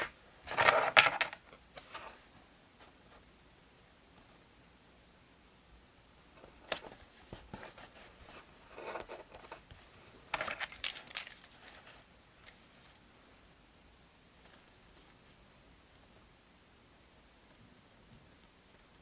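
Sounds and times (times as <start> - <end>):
paper rustle: 0.0 - 2.2, 6.4 - 13.0.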